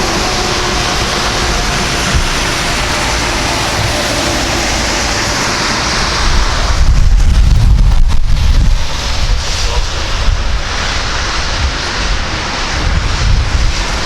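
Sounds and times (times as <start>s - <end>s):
heavy low rumble: 0.0s - 14.0s
jet engines roaring: 0.0s - 14.0s.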